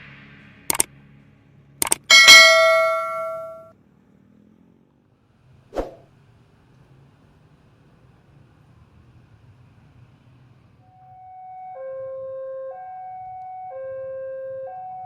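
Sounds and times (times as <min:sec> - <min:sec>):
sharp clicks: 0:01.8 - 0:02.1
metallic bell-like ding: 0:02.1 - 0:03.7.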